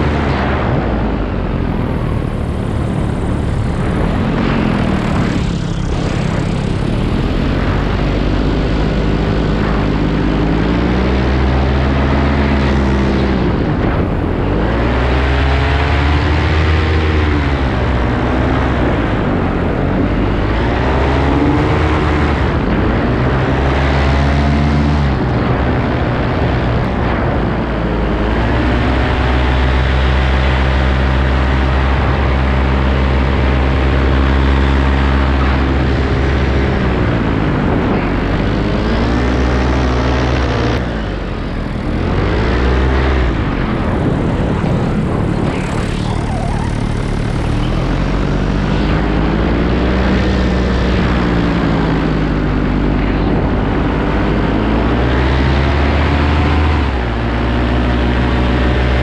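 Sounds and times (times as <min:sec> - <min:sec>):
paramotor engine and propeller: 0:00.0 - 0:59.0
high tones swooping in pitch: 0:44.6 - 0:48.5.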